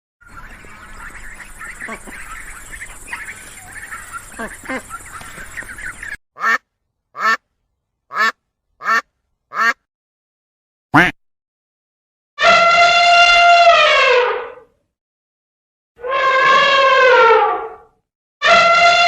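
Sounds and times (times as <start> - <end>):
ducks quacking: 0.2 - 6.6, 7.2 - 7.4, 8.1 - 9.8.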